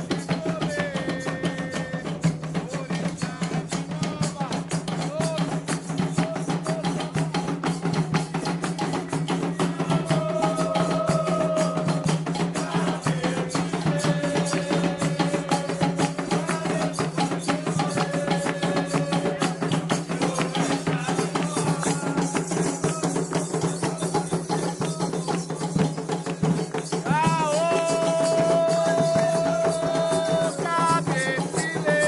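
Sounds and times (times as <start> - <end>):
hand drums playing fast rhythm: 0.0 - 32.0
sharp clicking percussion: 0.0 - 32.0
voices singing long notes: 9.3 - 25.2.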